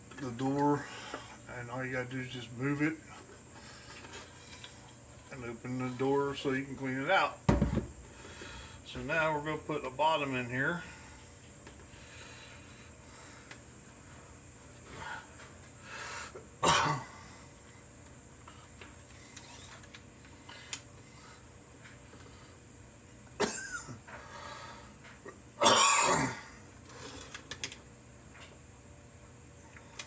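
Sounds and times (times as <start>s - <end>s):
man coughing: 16.6s - 17.1s, 23.4s - 24.0s, 25.6s - 26.4s.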